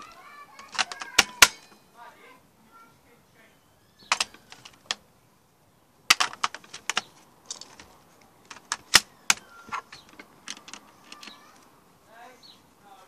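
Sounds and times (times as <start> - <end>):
batteries clicking and clattering: 0.0 - 1.7, 4.1 - 5.0, 6.1 - 11.7.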